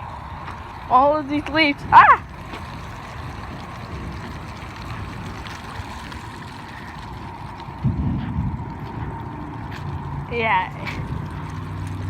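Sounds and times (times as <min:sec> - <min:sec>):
steady rain: 0:00.0 - 0:12.0
wind rumble on microphone: 0:00.0 - 0:12.0.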